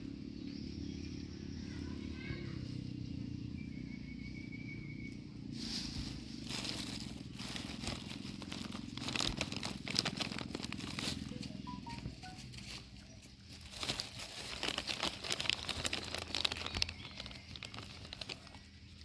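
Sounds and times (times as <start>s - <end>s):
monkeys tearing food: 6.9s - 12.4s, 13.7s - 18.8s.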